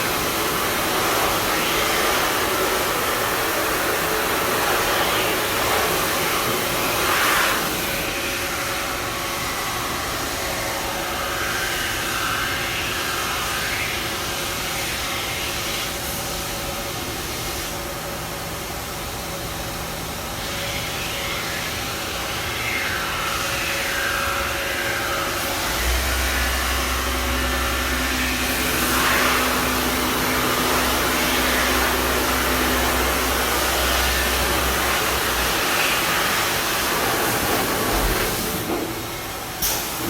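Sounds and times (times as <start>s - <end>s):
grinding machine rushing noise: 20.9s - 38.7s.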